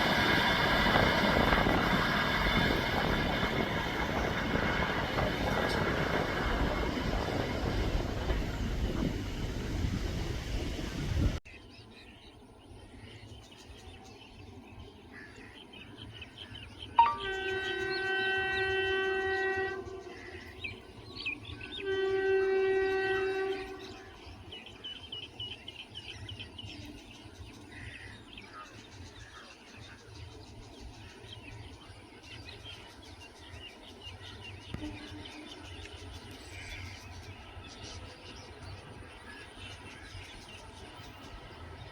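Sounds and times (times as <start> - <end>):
train rushing past: 0.0 - 11.4
locomotive horn blasts: 17.0 - 20.4, 21.8 - 24.0.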